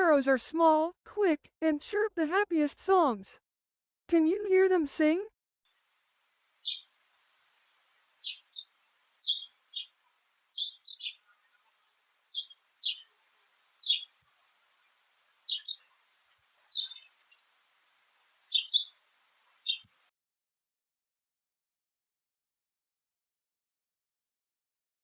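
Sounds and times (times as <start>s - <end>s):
sparrow chirping: 6.6s - 6.9s, 8.2s - 20.0s.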